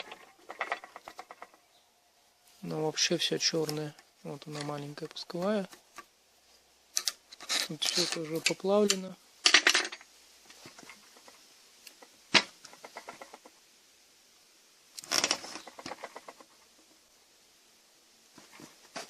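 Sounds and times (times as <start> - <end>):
metal parts clinking and rattling: 0.0 - 1.5, 6.9 - 10.1.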